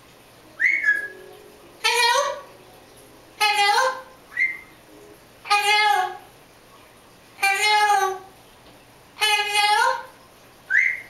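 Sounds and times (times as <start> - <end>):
parrot calling: 0.5 - 6.3, 7.4 - 8.3, 9.2 - 11.0
parrot high whistle: 0.6 - 2.4, 3.4 - 4.8, 10.7 - 11.0.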